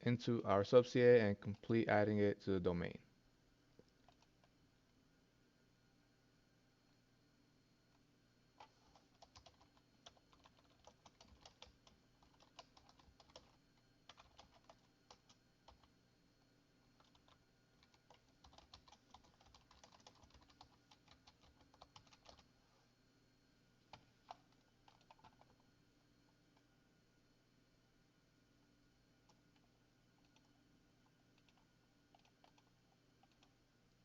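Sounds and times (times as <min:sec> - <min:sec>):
faint keyboard typing: 0:01.3 - 0:01.8, 0:03.8 - 0:04.6, 0:08.6 - 0:22.6, 0:23.8 - 0:26.7, 0:29.2 - 0:34.0.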